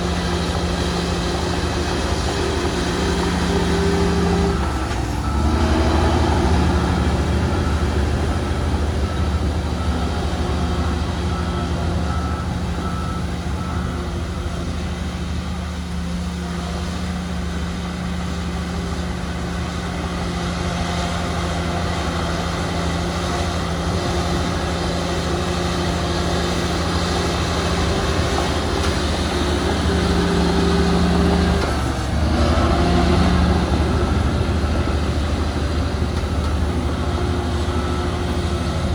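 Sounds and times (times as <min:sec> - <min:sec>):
heavy diesel machinery running: 0:00.0 - 0:38.9.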